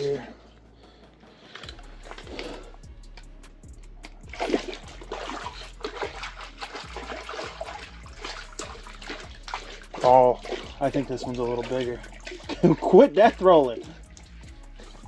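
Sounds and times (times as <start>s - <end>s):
water splashing in ice hole: 4.2s - 14.1s.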